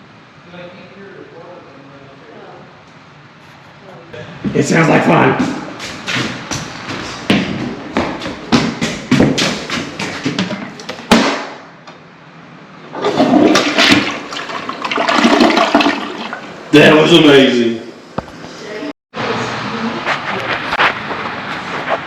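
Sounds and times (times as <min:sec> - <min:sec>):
sharp knocks: 0:05.4 - 0:11.7
toilet water rushing: 0:12.9 - 0:17.2.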